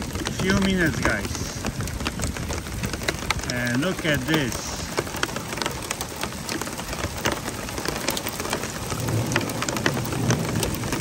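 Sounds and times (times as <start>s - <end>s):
hailstones striking: 0.0s - 11.0s
heavy rain on water and pavement: 0.0s - 11.0s.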